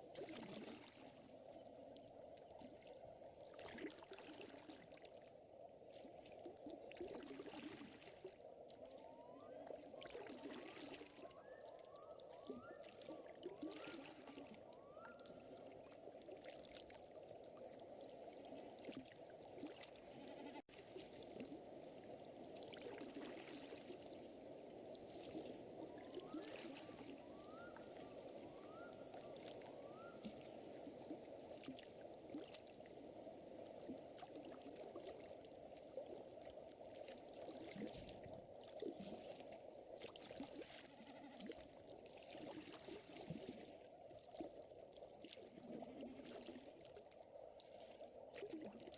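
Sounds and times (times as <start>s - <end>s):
lake water lapping: 10.0s - 48.9s.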